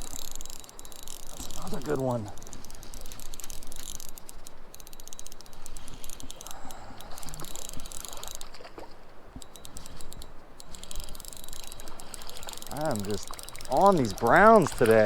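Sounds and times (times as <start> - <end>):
fishing reel clicking: 0.0 - 15.0
river rushing: 12.7 - 15.0.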